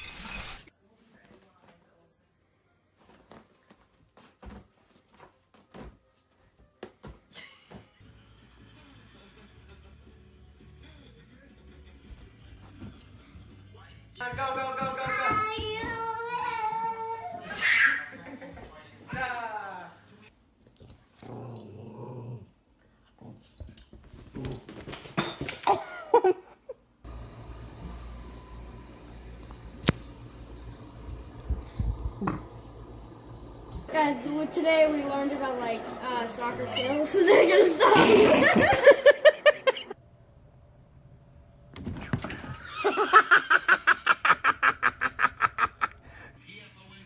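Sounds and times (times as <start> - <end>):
dog growling and whining: 21.2 - 22.6
person laughing hard: 37.2 - 40.0, 42.6 - 46.0.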